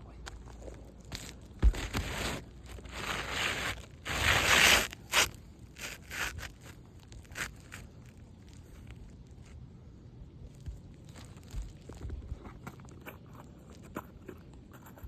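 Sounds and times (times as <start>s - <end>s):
shingle scraping on roof: 1.1s - 7.9s.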